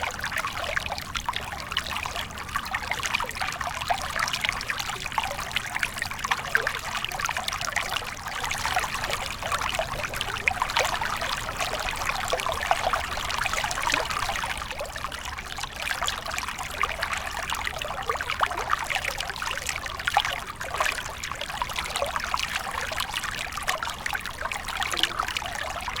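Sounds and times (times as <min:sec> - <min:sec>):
river water babbling over stones: 0:07.5 - 0:15.3.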